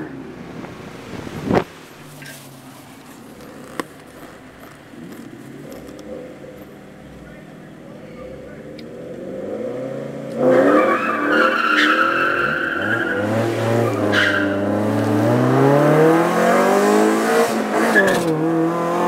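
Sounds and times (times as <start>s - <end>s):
car engines accelerating hard: 0.0s - 19.0s
high-pitched tyre squeals: 10.4s - 15.2s, 17.8s - 18.4s.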